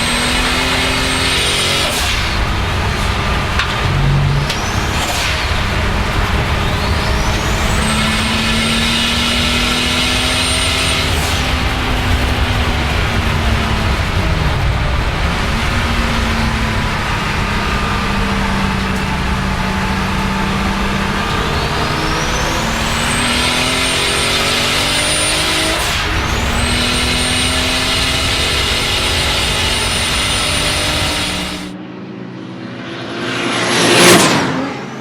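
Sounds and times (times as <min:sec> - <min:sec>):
car engine accelerating: 0:00.0 - 0:35.0
car passing close by: 0:21.8 - 0:35.0.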